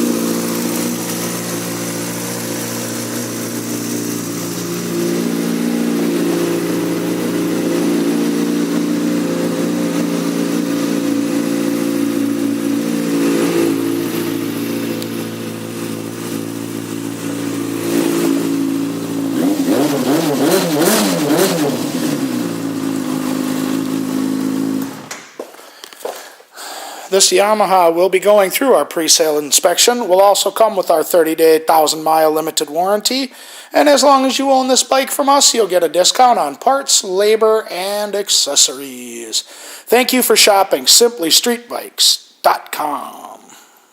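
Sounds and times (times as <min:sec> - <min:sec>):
motorcycle engine idling and revving: 0:00.0 - 0:25.1.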